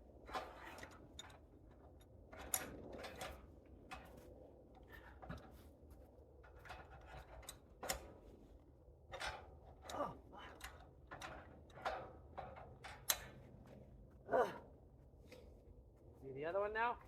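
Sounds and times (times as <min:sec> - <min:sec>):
light clicks and knocks: 0:09.1 - 0:13.8
faint voice: 0:14.3 - 0:14.6.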